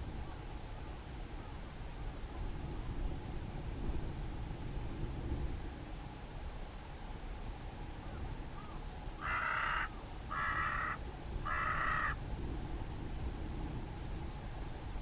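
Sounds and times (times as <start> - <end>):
crow cawing: 8.6 - 12.2.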